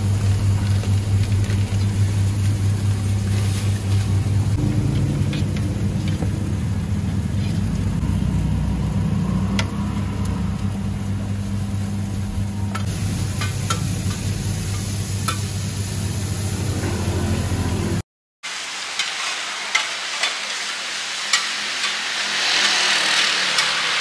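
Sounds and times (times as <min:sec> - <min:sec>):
omelette sizzling in pan: 0:18.5 - 0:24.0.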